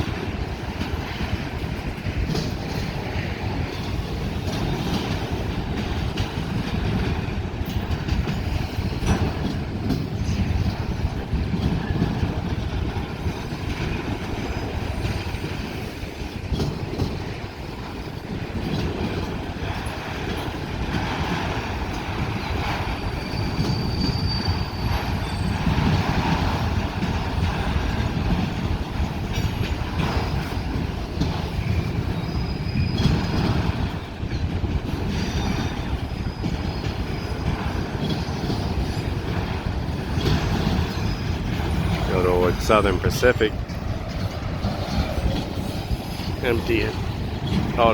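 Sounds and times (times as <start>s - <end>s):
train wheels rumbling on rail: 0.0s - 47.9s
wheels clacking: 0.0s - 47.9s
high wheel squeals: 22.9s - 25.7s, 31.6s - 33.5s.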